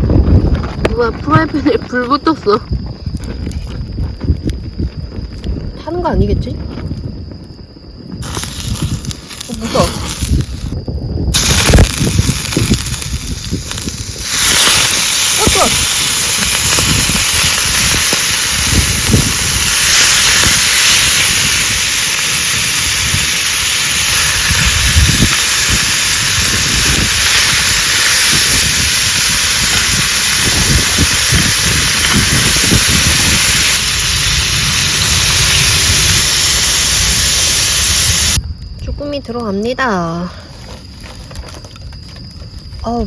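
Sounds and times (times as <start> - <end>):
low rumbles: 0.0 - 39.6
food sizzling in frying pan: 11.3 - 38.4.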